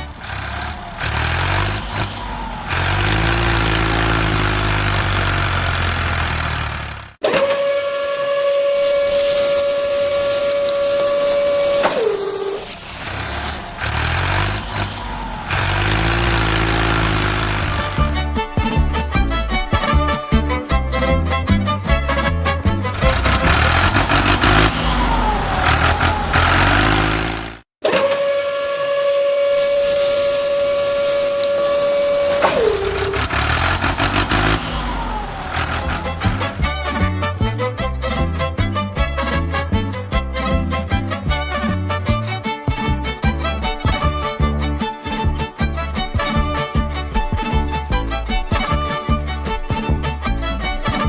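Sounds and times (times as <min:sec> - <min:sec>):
rapid clicking and rattling: 0:00.0 - 0:07.2, 0:12.8 - 0:18.2, 0:22.9 - 0:27.7, 0:29.9 - 0:36.8
small electric motor whining: 0:00.0 - 0:18.1, 0:23.0 - 0:36.8
horn high held tone: 0:07.2 - 0:18.2, 0:22.1 - 0:37.7
low rumbling noise: 0:22.9 - 0:27.7.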